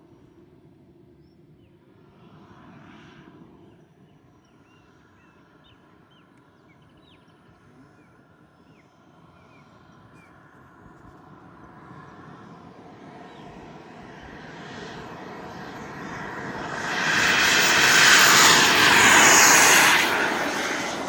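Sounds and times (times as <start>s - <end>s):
model jet whoosh passing: 11.3s - 21.0s.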